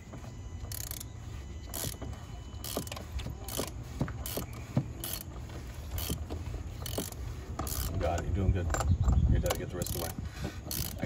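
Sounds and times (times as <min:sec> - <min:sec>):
ratchet wrench clicking: 0:00.6 - 0:01.1, 0:01.7 - 0:02.0, 0:02.6 - 0:05.3, 0:05.9 - 0:11.0.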